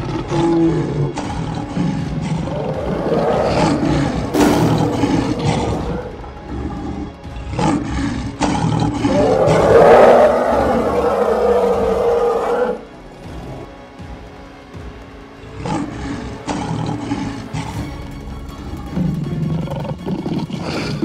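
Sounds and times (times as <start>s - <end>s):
cartoon lion roaring: 0.0s - 12.8s
dramatic background music: 0.0s - 21.0s
sharp hits: 4.3s - 6.3s.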